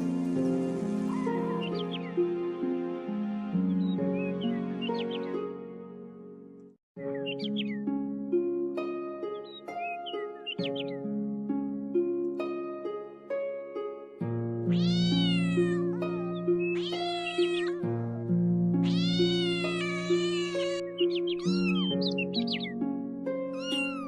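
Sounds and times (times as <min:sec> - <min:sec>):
plucked background music: 0:00.0 - 0:24.0
kitten mewing: 0:14.7 - 0:17.8, 0:18.8 - 0:22.0, 0:23.6 - 0:24.0
cat meowing: 0:14.7 - 0:17.9, 0:18.8 - 0:22.4, 0:23.5 - 0:24.0.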